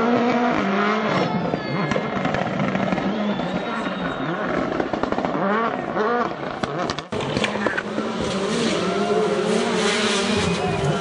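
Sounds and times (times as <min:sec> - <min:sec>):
car engine revving hard: 0:00.0 - 0:01.3, 0:04.3 - 0:11.0.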